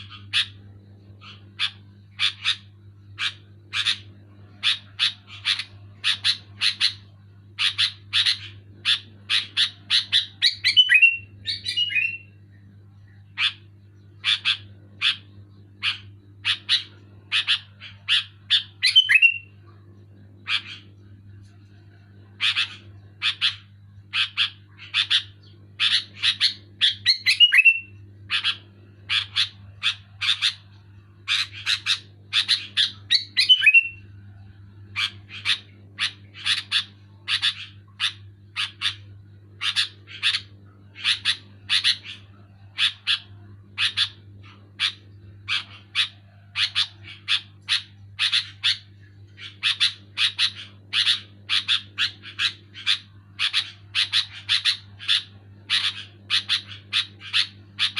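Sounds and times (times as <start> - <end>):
bulbul singing: 0.0 - 57.9
low steady hum: 0.0 - 57.9.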